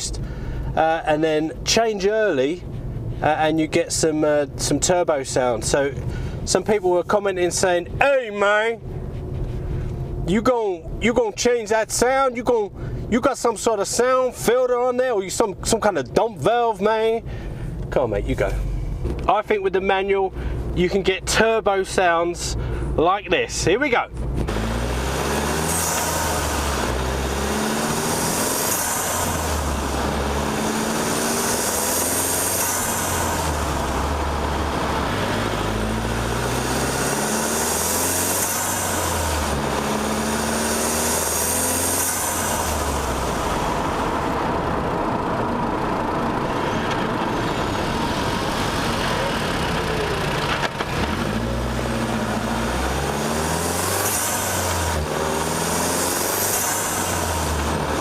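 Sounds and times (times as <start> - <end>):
turbocharged car engine revving: 24.1 - 58.0.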